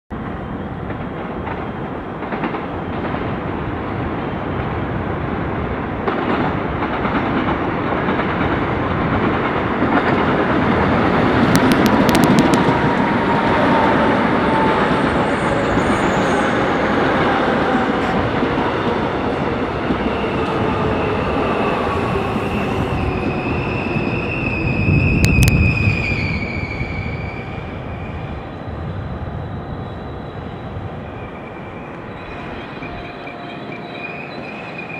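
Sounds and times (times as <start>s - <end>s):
subway train rumble: 0.1s - 34.9s
train whine: 0.1s - 34.9s
steel wheel squeal: 30.1s - 34.9s.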